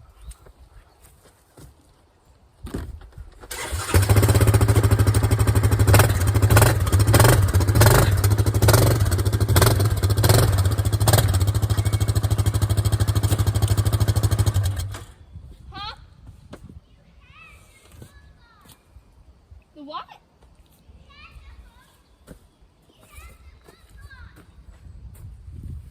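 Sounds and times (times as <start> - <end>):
atv engine starting and chugging: 3.5 - 15.2.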